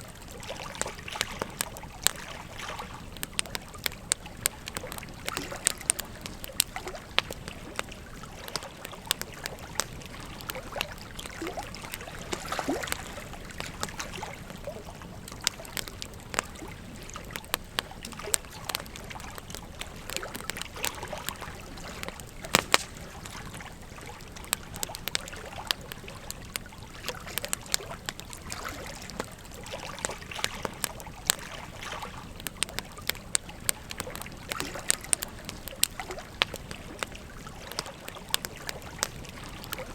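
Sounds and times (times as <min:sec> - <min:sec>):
flowing river water: 0:00.0 - 0:39.9
wood fire crackling and popping: 0:00.0 - 0:39.9.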